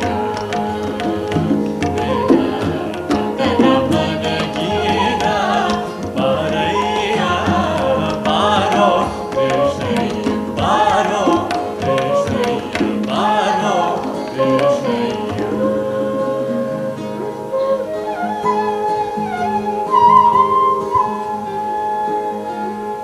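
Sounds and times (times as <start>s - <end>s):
tabla: 0.0s - 16.1s
person singing: 0.0s - 17.9s
flute: 0.0s - 23.0s
guitar: 0.0s - 23.0s.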